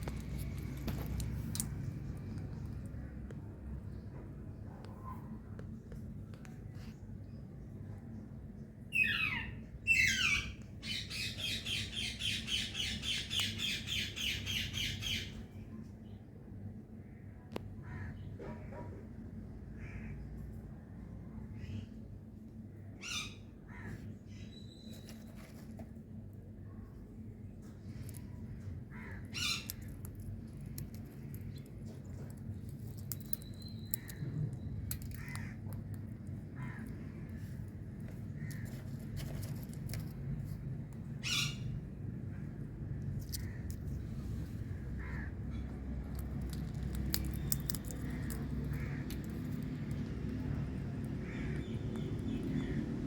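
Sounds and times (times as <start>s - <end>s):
steady low hum: 0.0s - 8.9s, 9.5s - 53.0s
parakeet harsh calls: 28.9s - 29.8s, 41.2s - 41.7s.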